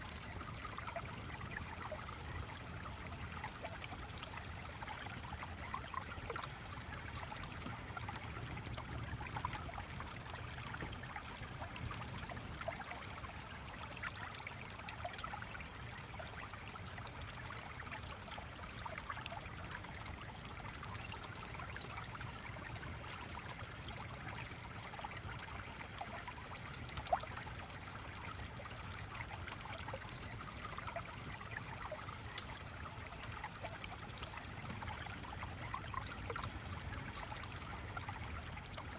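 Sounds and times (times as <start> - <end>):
stream trickling and babbling: 0.0 - 38.9.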